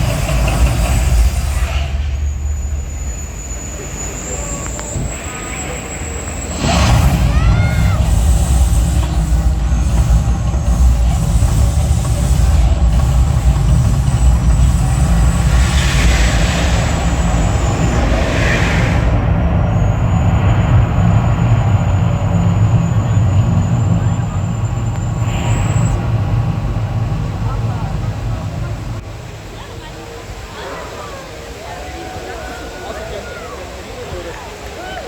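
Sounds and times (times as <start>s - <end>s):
hissing bursts: 0.0s - 21.1s
deep steady rumble: 0.0s - 30.3s.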